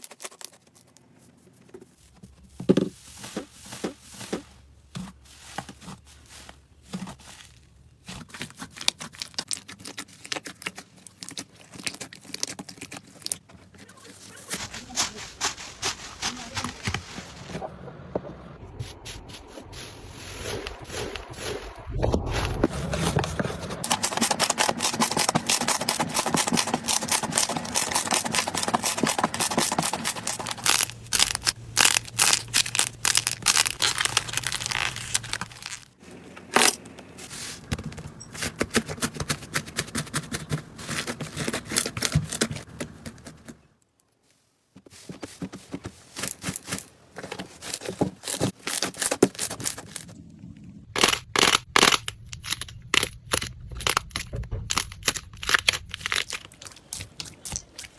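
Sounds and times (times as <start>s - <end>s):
slime crackling and popping: 23.8s - 36.0s, 51.0s - 57.9s.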